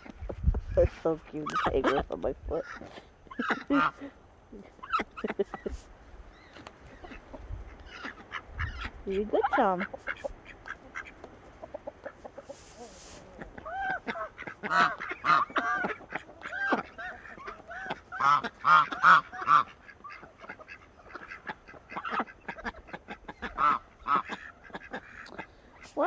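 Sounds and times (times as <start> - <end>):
ducks quacking: 0.0 - 26.0.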